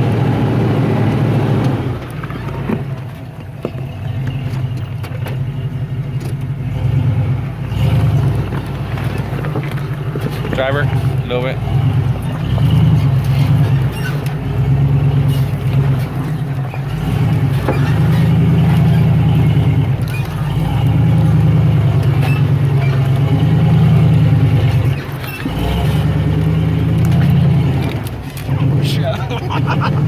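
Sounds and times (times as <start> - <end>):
off-road vehicle engine under load: 0.0 - 30.0.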